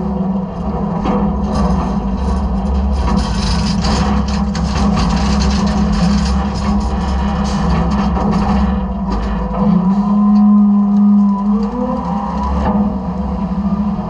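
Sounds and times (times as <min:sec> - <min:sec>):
garbage truck engine drone: 0:00.0 - 0:14.0
trash scraping and rattling: 0:00.6 - 0:10.5.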